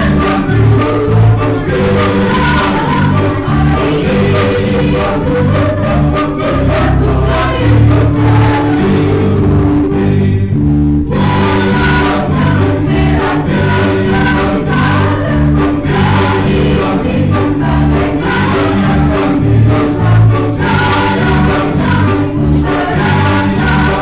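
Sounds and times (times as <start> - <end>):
choir singing a hymn: 0.0 - 24.0
instrumental accompaniment: 0.0 - 24.0.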